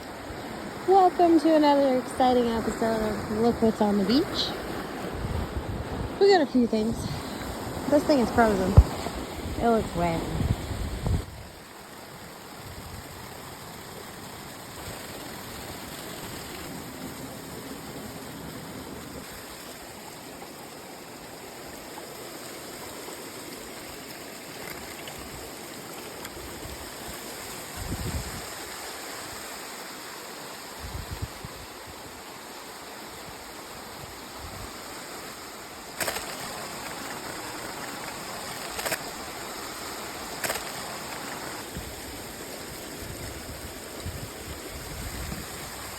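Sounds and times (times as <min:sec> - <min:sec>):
running water rushing: 0:00.0 - 0:45.9
sharp clicks: 0:36.0 - 0:36.6, 0:40.4 - 0:41.4.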